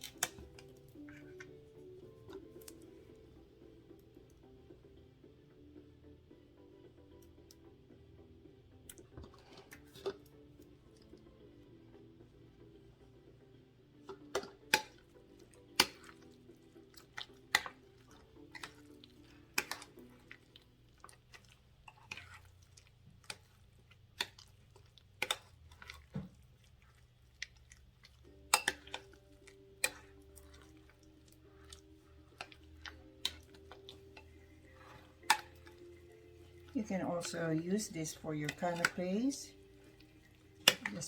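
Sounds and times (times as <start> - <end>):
faint background music: 0.0 - 41.0
spoon scraping a bowl: 21.9 - 22.6, 31.6 - 37.4.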